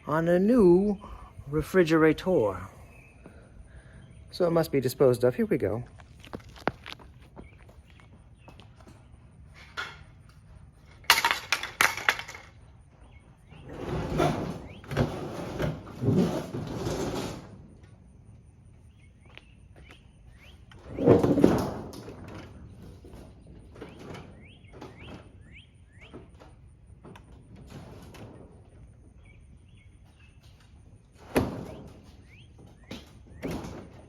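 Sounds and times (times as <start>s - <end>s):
birds chirping: 0.0s - 10.6s, 12.6s - 15.0s, 18.6s - 21.2s, 23.6s - 26.4s, 29.1s - 30.9s, 31.7s - 33.5s
sharp knocks and clattering impacts: 5.8s - 18.0s.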